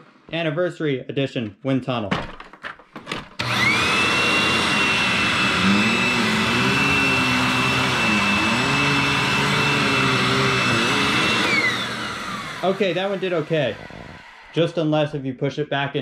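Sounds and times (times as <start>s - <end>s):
vacuum cleaner running: 3.4s - 15.0s.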